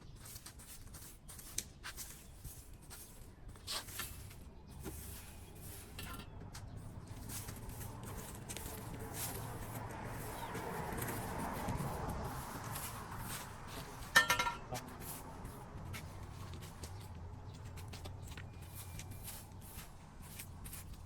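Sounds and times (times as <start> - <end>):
debris knocking and scraping: 14.0 - 14.8.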